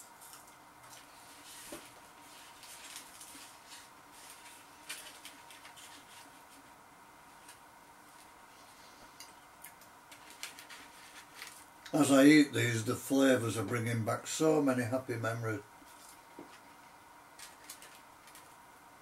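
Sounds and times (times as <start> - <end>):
paper rustling: 0.2 - 6.8, 10.1 - 11.7, 17.4 - 18.6.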